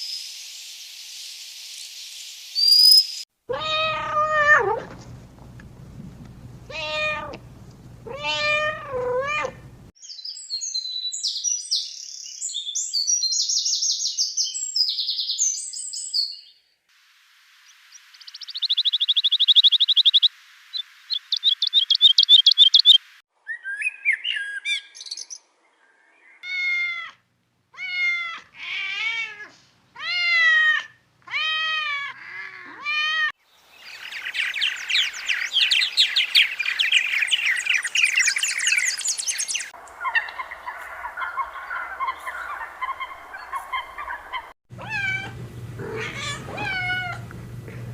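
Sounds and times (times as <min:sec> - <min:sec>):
cat meowing: 0:03.5 - 0:04.9, 0:06.7 - 0:07.4, 0:08.0 - 0:09.6, 0:26.4 - 0:27.2, 0:27.8 - 0:33.3, 0:44.8 - 0:47.3
small birds chirping and trilling: 0:10.0 - 0:16.7, 0:17.6 - 0:26.4, 0:33.4 - 0:44.5.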